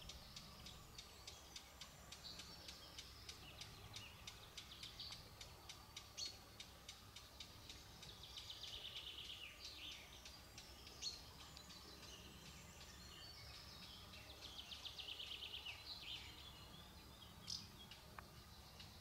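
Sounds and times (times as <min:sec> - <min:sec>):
faint background hiss: 0:00.0 - 0:19.0
small birds trilling: 0:00.0 - 0:19.0.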